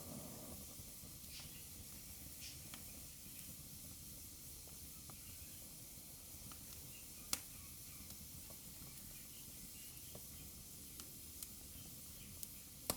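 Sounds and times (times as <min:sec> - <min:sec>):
fireplace fire hissing: 0:00.0 - 0:07.5
wood fire crackling and popping: 0:00.0 - 0:12.9.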